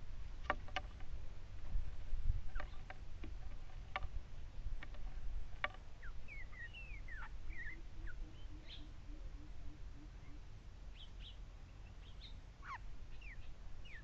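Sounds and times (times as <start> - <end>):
bird chirping and whistling: 6.0 - 8.9.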